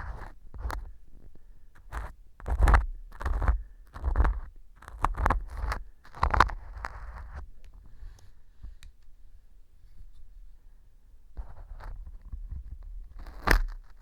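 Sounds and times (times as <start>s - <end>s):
earpick scraping and crunching: 1.8s - 7.4s, 13.1s - 14.0s.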